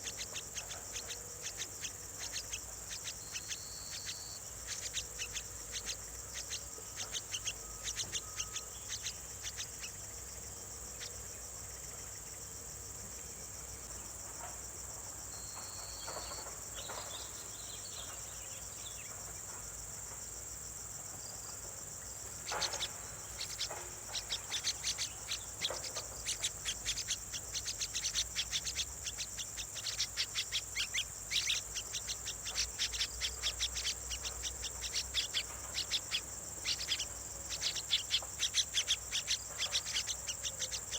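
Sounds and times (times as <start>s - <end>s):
nestling birds begging calls: 0.0s - 10.0s, 22.3s - 40.9s
high-pitched insect drone: 22.5s - 40.9s.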